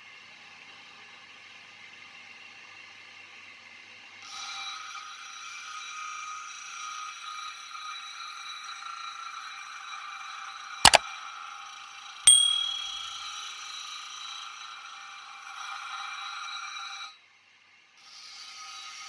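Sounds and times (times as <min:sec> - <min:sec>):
sharp double click: 0:12.3 - 0:13.2
bright metallic ding: 0:12.3 - 0:13.3.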